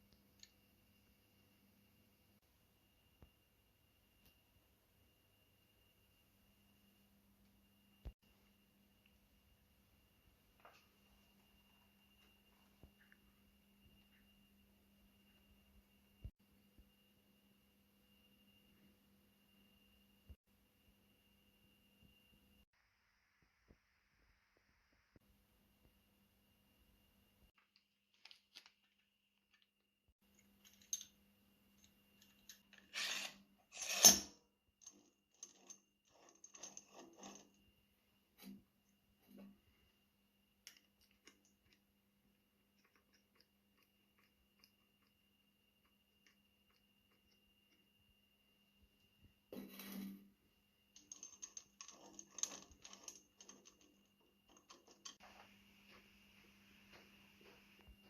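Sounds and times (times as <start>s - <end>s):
small metal parts clinking: 30.4s - 31.2s, 51.0s - 55.2s
metal parts scraping: 32.7s - 34.3s, 51.1s - 55.2s.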